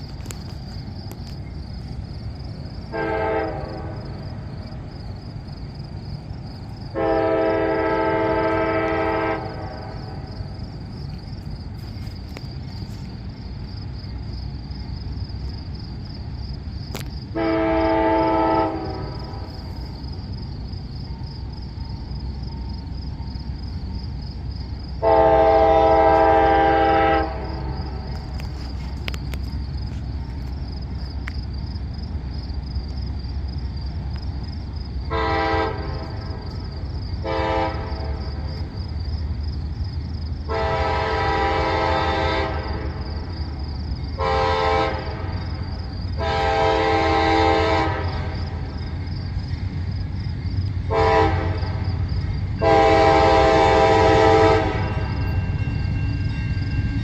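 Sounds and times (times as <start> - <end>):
train rumbling: 0.0 - 57.0
locomotive air horn blasts: 2.9 - 4.2, 6.9 - 10.3, 17.3 - 19.5, 25.0 - 28.2, 35.1 - 36.4, 37.2 - 38.2, 40.5 - 43.0, 44.2 - 45.4, 46.2 - 48.6, 50.9 - 51.8, 52.6 - 55.2.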